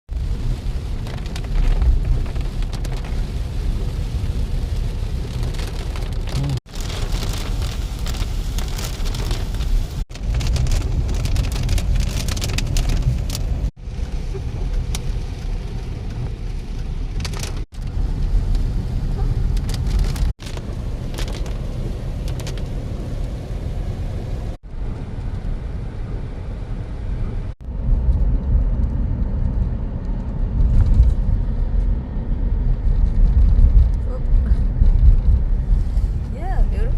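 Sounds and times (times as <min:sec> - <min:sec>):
heavy rain on a car: 0:00.1 - 0:25.9
car road rumble: 0:00.1 - 0:36.9.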